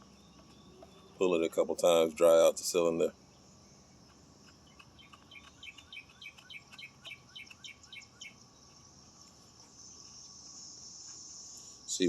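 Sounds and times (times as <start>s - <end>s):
bird chirping: 0.0s - 12.0s
insect hiss: 5.6s - 12.0s.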